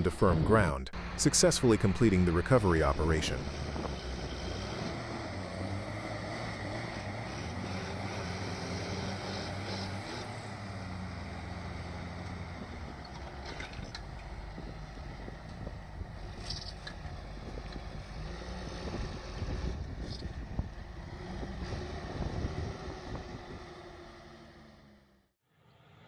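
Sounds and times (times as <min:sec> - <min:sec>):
tractor diesel engine running: 0:00.0 - 0:25.2
wind noise on microphone: 0:03.2 - 0:05.2, 0:13.7 - 0:23.9.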